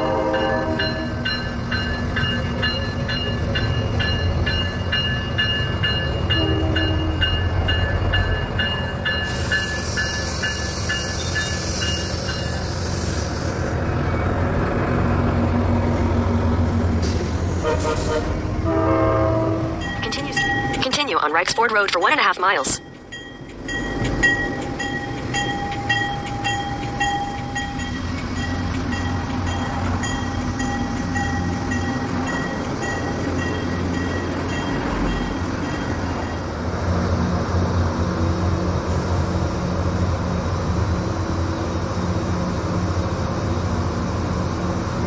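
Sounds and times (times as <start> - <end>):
crossing bell ringing: 0.0 - 12.7, 18.7 - 36.6
train rolling by: 0.0 - 45.0.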